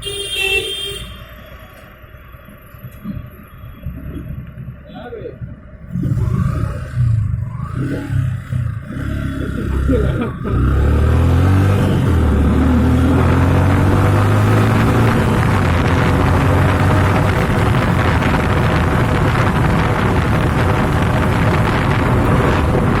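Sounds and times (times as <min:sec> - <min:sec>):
motorcycle engine running: 0:00.1 - 0:23.0
wind on microphone: 0:11.3 - 0:23.0.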